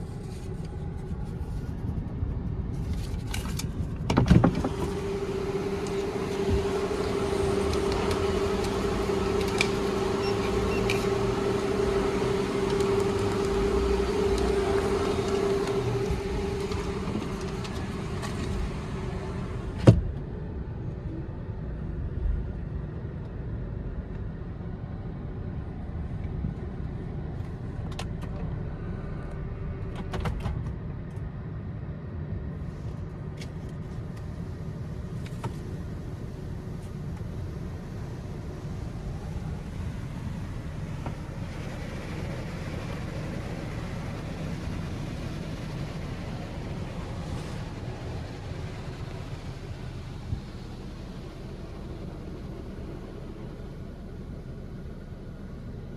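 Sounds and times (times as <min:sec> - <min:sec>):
low machine rumble: 0:00.0 - 0:55.9
car wash spraying hiss: 0:04.4 - 0:20.0, 0:34.0 - 0:55.9.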